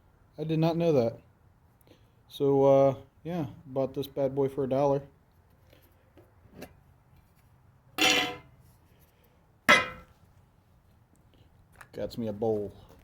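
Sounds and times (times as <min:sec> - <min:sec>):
small metal tin clinking: 0:09.7 - 0:10.1.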